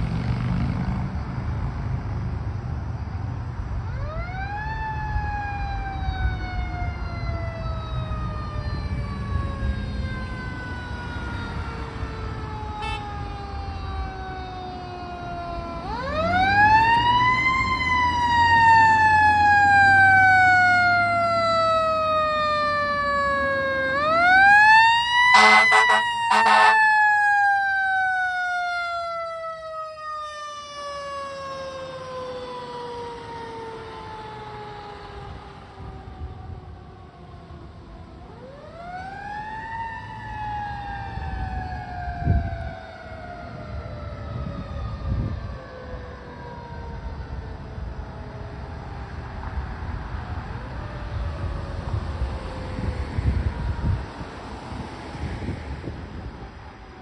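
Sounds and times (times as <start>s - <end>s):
truck engine rumble: 0.0s - 45.6s
fire truck siren winding: 5.4s - 35.3s
air horn blasts: 12.8s - 13.2s, 25.3s - 27.0s.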